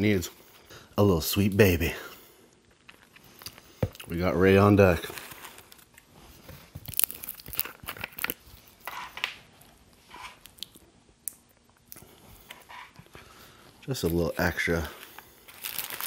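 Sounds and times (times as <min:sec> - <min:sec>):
paper wrapper crinkling: 0:02.6 - 0:09.3, 0:13.9 - 0:16.0.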